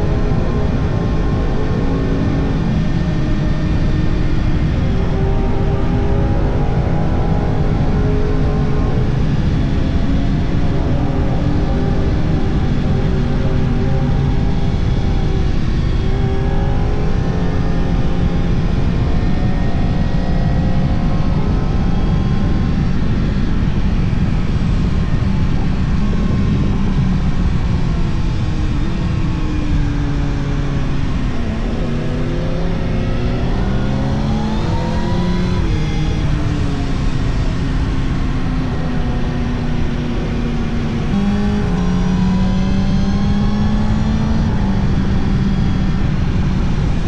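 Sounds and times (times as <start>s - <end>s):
low rumble of wind noise: 0.0s - 47.0s
motorcycle engine revving: 24.1s - 47.0s.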